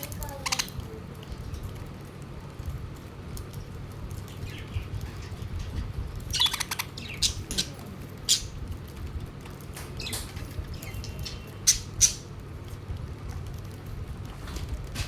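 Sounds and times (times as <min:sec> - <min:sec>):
low background rumble: 0:00.0 - 0:15.0
budgerigars chirping and squawking: 0:04.3 - 0:08.6, 0:10.0 - 0:12.3.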